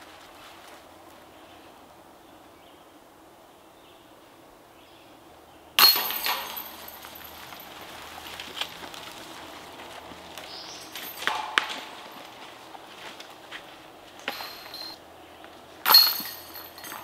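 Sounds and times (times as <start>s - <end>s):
metallic chains ringing: 5.8s - 9.0s, 10.4s - 12.8s, 14.2s - 15.0s, 15.8s - 17.0s
disc hitting metal basket: 5.8s - 15.0s, 15.8s - 17.0s.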